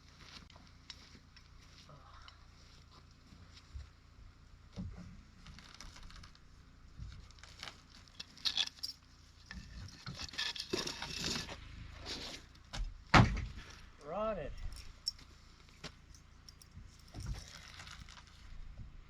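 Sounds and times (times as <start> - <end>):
material scraping and tearing: 5.4 - 6.4, 7.2 - 8.8, 17.4 - 18.4.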